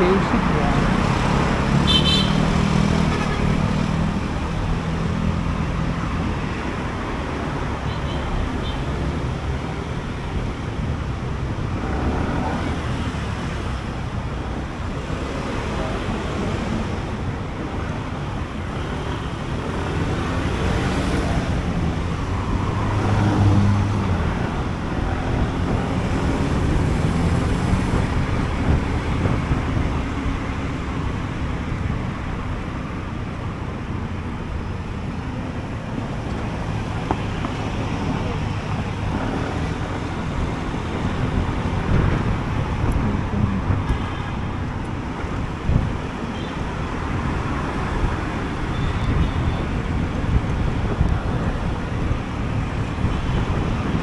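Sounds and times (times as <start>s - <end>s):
wind on microphone: 19.6s - 32.5s, 35.9s - 54.0s.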